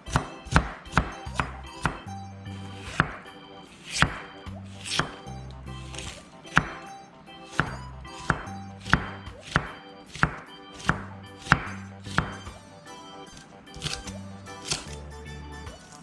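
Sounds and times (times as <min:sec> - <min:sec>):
background music: 0:00.0 - 0:16.0
knife chopping on cutting board: 0:00.1 - 0:02.0, 0:02.6 - 0:03.2, 0:03.8 - 0:05.2, 0:05.8 - 0:06.9, 0:07.5 - 0:12.6, 0:13.3 - 0:15.0.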